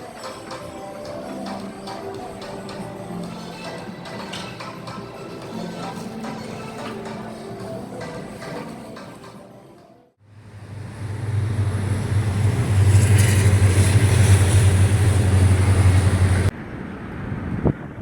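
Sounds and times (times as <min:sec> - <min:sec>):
vehicle rumble and road noise: 0:10.2 - 0:18.0.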